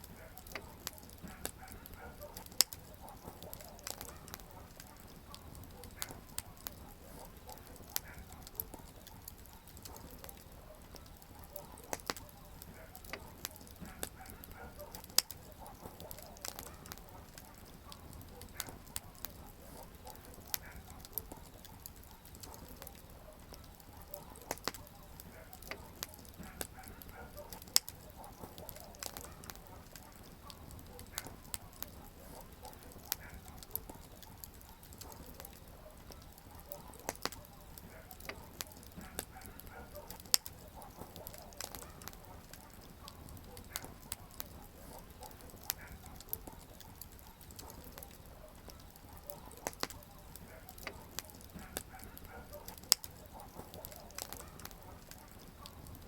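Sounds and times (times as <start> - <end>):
campfire crackling and popping: 0.0 - 56.0
fire hissing: 0.0 - 56.0.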